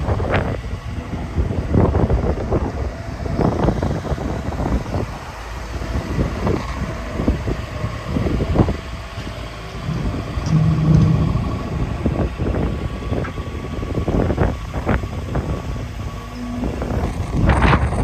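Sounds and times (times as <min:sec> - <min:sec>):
excavator diesel engine humming: 0:00.0 - 0:18.0
short knocks and clanks: 0:09.8 - 0:12.3.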